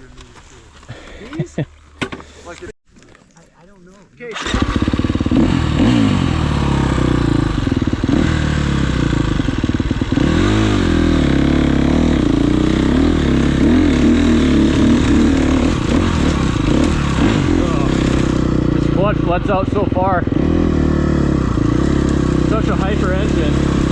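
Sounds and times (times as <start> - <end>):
dirt bike engine revving: 4.3 - 23.9.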